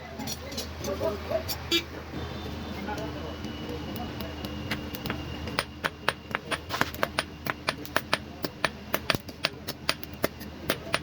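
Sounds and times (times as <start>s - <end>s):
hammer striking metal: 3.4s - 11.0s.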